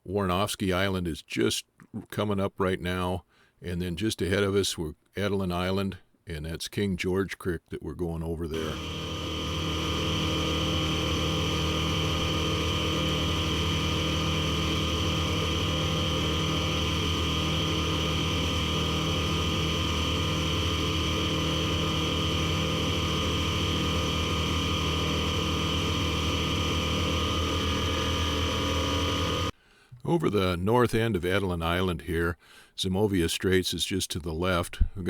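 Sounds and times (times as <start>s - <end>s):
airplane engine and propeller drone: 8.6s - 29.5s.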